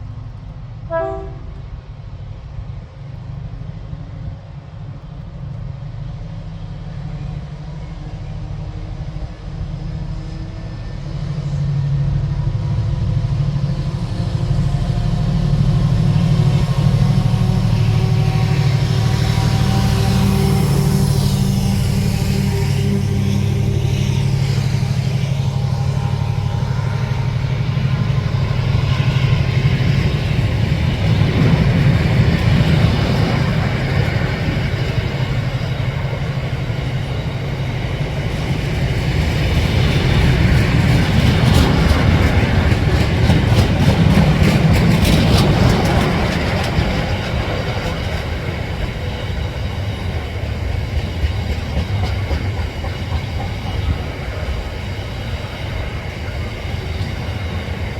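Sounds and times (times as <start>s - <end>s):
train passing: 0.0s - 57.9s
wheels clattering over rail joints: 38.4s - 55.0s.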